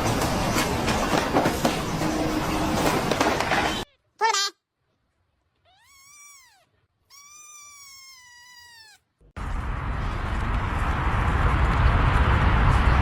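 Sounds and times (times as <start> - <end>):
cat meowing: 5.6 - 9.1.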